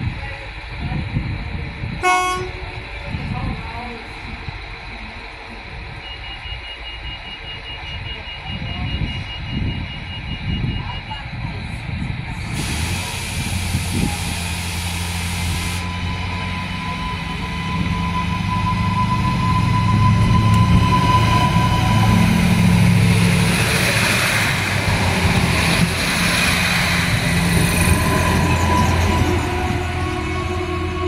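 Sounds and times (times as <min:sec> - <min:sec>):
diesel railcar engine rumble: 0:00.0 - 0:31.0
hiss: 0:12.4 - 0:15.9.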